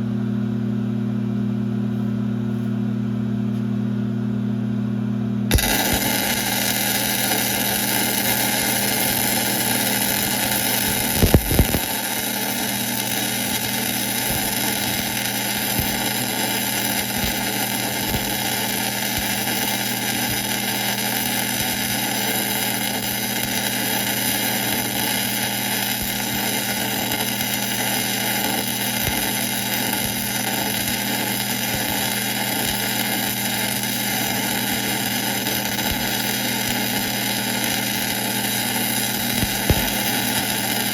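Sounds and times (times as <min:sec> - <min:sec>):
lathe running: 0:05.5 - 0:40.9.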